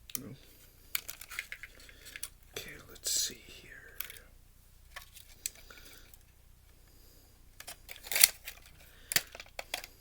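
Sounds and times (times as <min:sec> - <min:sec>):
plastic and metal parts clicking: 0:00.9 - 0:02.4, 0:07.6 - 0:10.0.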